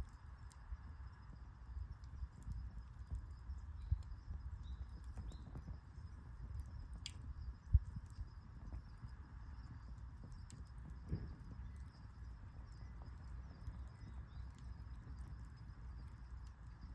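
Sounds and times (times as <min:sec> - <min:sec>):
campfire crackling and popping: 0:00.0 - 0:16.9.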